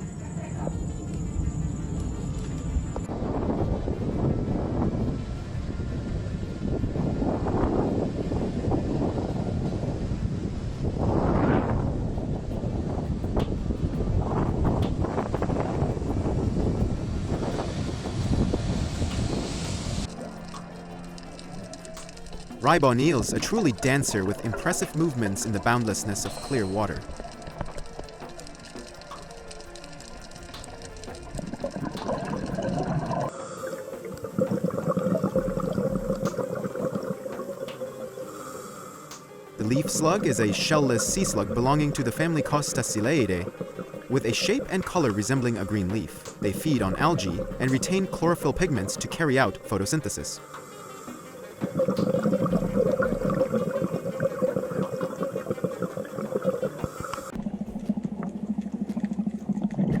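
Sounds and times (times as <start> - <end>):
water bubbling and gurgling: 11.1 - 60.0.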